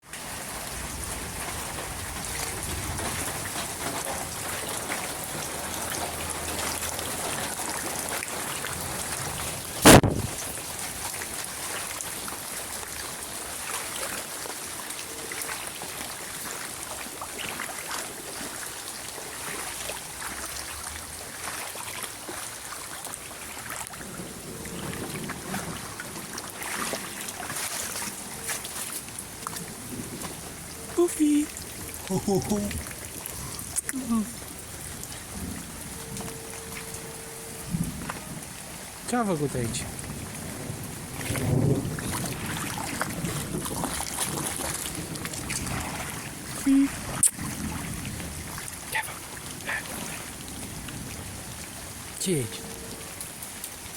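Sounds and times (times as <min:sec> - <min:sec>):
rain falling: 0:00.0 - 0:53.9
sharp thunder crack: 0:09.8 - 0:10.5.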